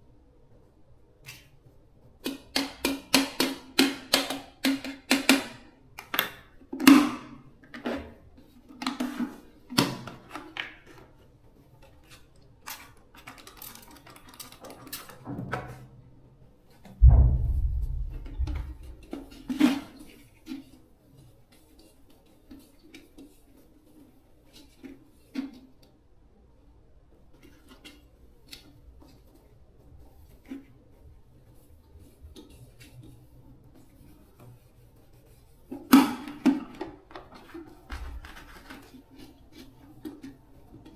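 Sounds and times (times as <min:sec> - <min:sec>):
heavy low thud and rumble: 0:17.0 - 0:19.1.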